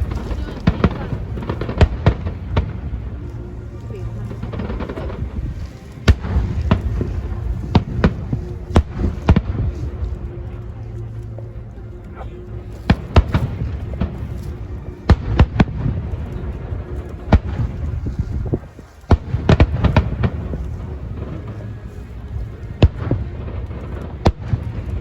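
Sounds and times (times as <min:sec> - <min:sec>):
fireworks bangs: 0:00.0 - 0:03.2, 0:04.2 - 0:10.0, 0:12.9 - 0:21.8
low rumble: 0:00.0 - 0:25.0.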